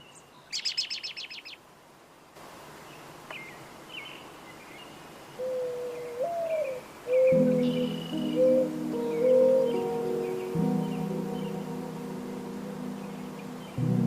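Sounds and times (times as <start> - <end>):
bird trilling chirps: 0.1 - 1.6, 5.4 - 11.7.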